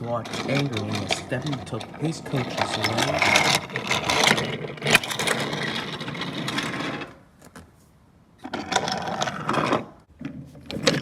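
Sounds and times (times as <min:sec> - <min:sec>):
wheels rattling on rails: 0:00.0 - 0:07.2.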